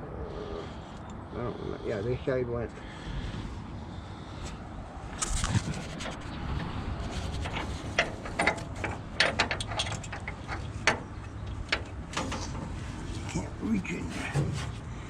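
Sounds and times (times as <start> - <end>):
wind rumble on microphone: 3.0 - 13.3
metal tools clinking and knocking: 7.5 - 11.0.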